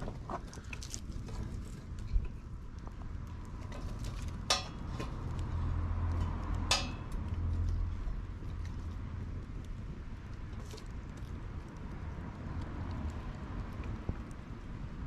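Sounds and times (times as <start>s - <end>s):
sharp metallic clinks: 6.7s - 7.1s.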